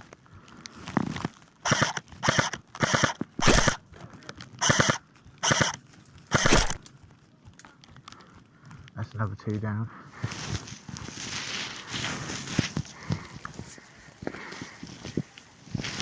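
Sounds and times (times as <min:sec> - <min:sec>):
airsoft gun firing bursts: 0:01.7 - 0:03.8, 0:04.6 - 0:06.8.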